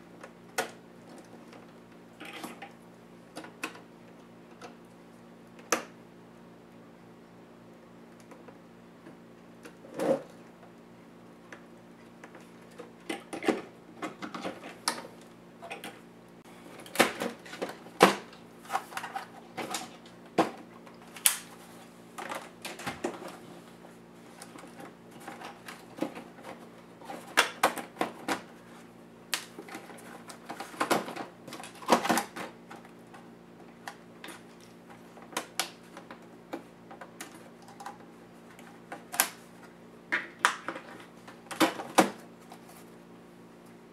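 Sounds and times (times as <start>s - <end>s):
laptop parts clicking and clattering: 16.7s - 21.5s, 22.2s - 23.4s, 29.4s - 39.4s.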